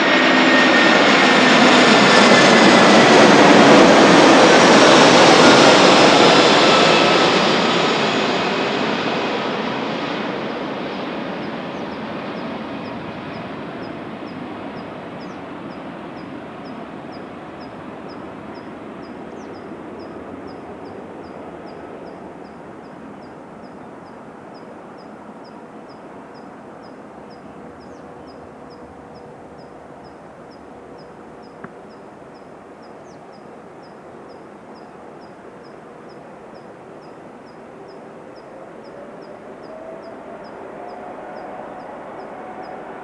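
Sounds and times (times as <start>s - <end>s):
jet engines whining: 0.0s - 25.2s, 34.5s - 43.0s.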